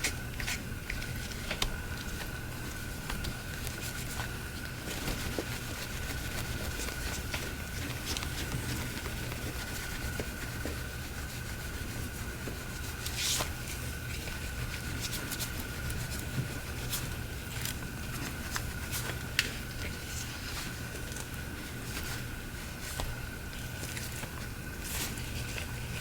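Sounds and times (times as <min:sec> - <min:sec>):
steady low hum: 0:00.0 - 0:26.0
phone being wiped and handled: 0:03.1 - 0:17.1.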